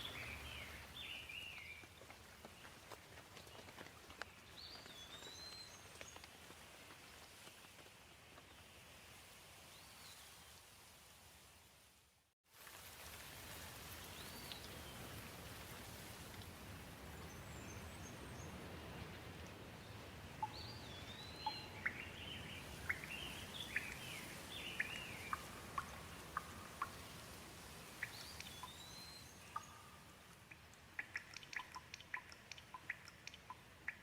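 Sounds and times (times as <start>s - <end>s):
gentle rain falling: 0.0s - 34.0s
quick sharp dripping ticks: 29.5s - 34.0s.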